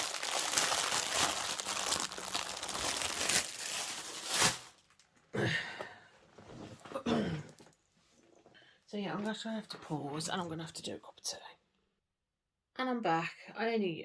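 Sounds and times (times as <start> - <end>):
plastic bags crinkling: 0.0 - 5.1.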